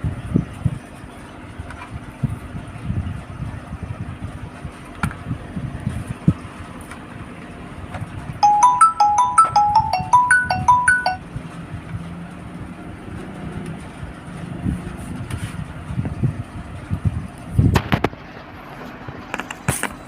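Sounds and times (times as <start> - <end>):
electronic beeping melody: 8.4 - 11.2.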